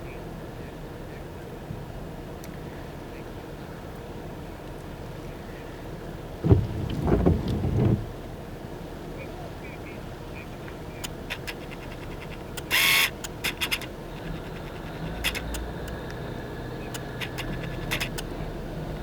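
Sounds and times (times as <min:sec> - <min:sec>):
truck engine rumble from cab: 0:00.3 - 0:19.0
clicks and rattles: 0:11.0 - 0:16.0, 0:16.9 - 0:18.3.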